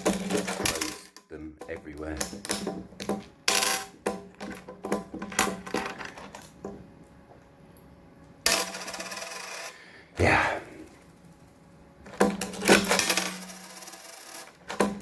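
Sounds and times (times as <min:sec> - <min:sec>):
metal coins clinking: 0:00.0 - 0:06.6, 0:08.5 - 0:09.8, 0:12.1 - 0:15.0.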